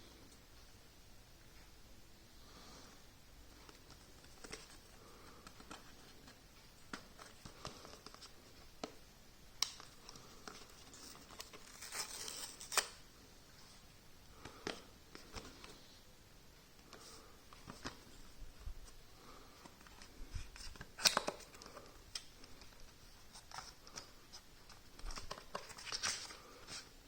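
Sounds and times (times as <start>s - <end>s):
paper rustling and tearing: 10.8s - 13.0s.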